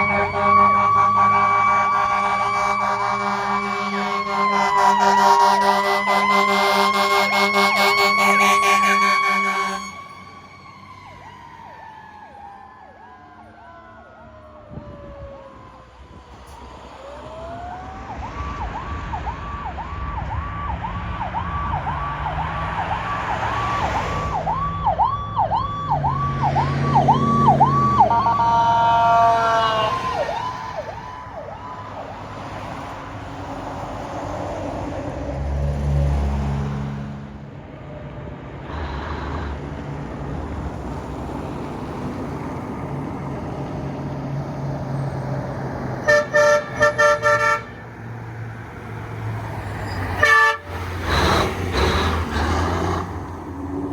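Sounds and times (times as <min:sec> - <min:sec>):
multi-tone horn blast: 0:00.0 - 0:10.3, 0:28.0 - 0:30.2, 0:46.0 - 0:47.8, 0:50.2 - 0:52.2
fire truck siren yelping: 0:00.0 - 0:34.4, 0:44.7 - 0:53.9
truck engine rumbling: 0:00.0 - 0:53.9.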